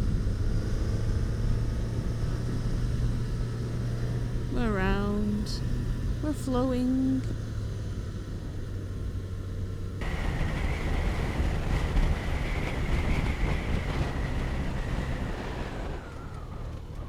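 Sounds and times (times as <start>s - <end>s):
motorcycle engine hum: 0.0s - 17.0s
wind rushing over microphone: 10.0s - 17.0s.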